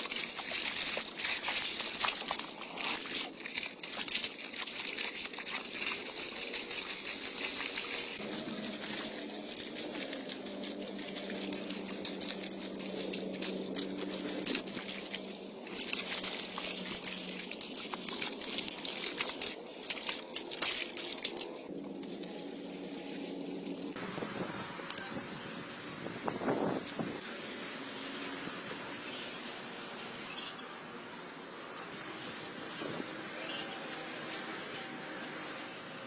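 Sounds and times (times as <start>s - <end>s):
water trickling and splashing: 0.0s - 36.0s
low hum: 6.4s - 25.1s.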